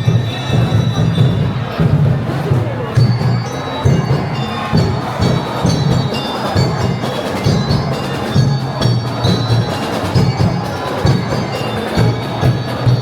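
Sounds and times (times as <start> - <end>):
festive parade music: 0.0 - 13.0
steady drum beat: 0.0 - 13.0
chiming bell-like tones: 2.8 - 13.0.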